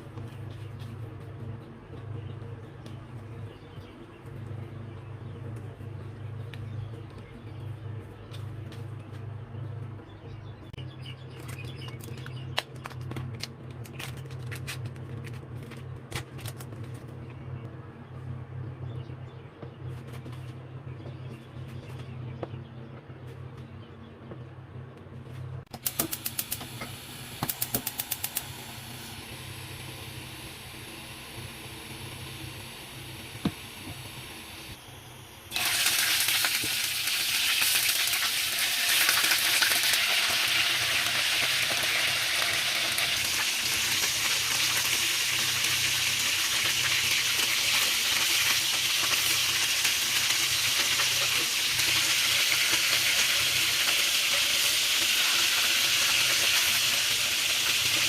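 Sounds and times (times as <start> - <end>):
food sizzling in hot oil: 35.5 - 58.0.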